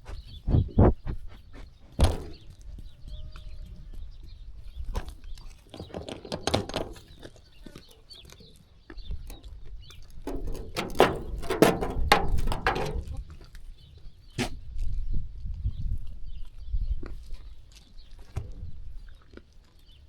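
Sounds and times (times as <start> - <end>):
clicks and knocks: 10.3 - 13.2.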